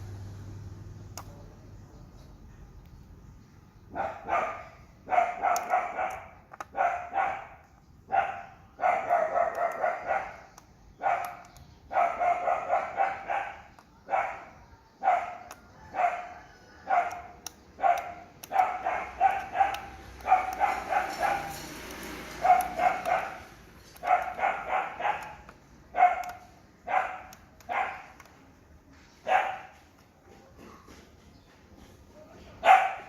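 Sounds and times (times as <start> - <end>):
dog barking: 3.9 - 28.4, 29.2 - 30.9, 32.4 - 33.0.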